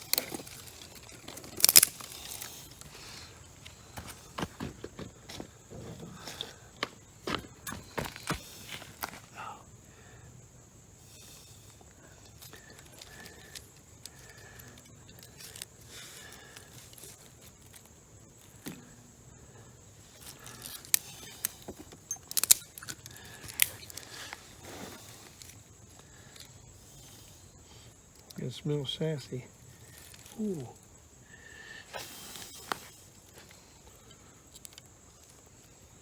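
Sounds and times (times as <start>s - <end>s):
fire snapping and cracking: 0.0s - 2.9s, 22.3s - 24.9s
campfire burning: 0.0s - 5.5s, 6.1s - 28.5s.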